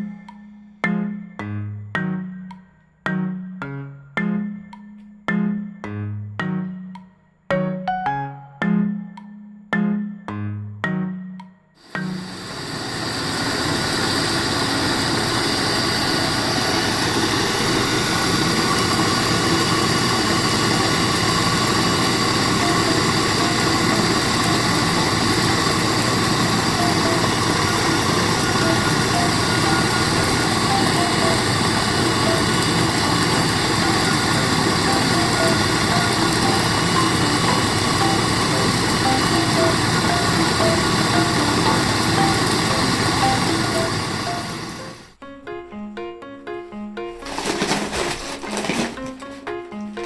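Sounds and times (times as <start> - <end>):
rice polishing machine motor drone: 11.8 - 45.1.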